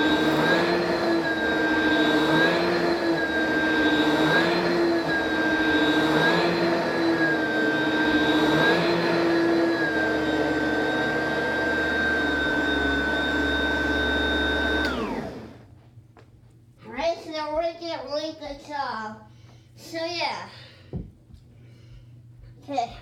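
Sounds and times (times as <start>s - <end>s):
vacuum cleaner running: 0.0s - 15.8s.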